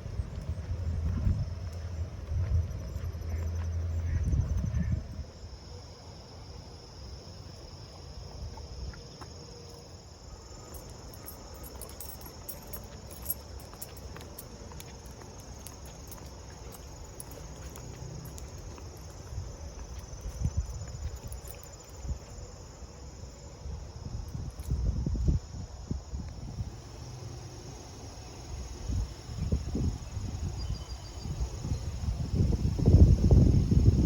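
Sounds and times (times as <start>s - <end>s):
wind buffeting microphone: 0.0s - 3.4s, 4.0s - 5.3s, 23.7s - 27.0s, 28.5s - 34.0s
insects trilling: 0.1s - 34.0s.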